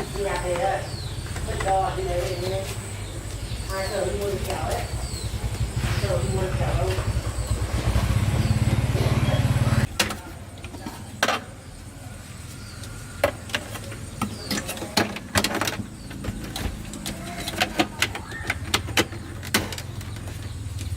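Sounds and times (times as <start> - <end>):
motor pulsing rumble: 0.0 - 10.0.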